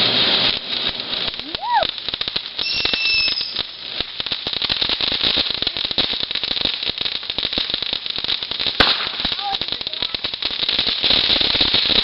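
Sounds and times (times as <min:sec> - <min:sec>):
fireworks crackling: 0:00.0 - 0:12.0
high steady whistle: 0:02.6 - 0:03.7.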